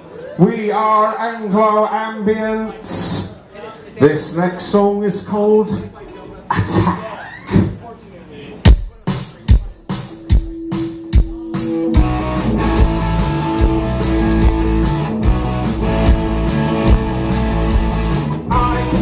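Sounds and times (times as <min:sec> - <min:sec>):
drum hits: 0:08.7 - 0:19.0
rock band playing: 0:08.9 - 0:19.0.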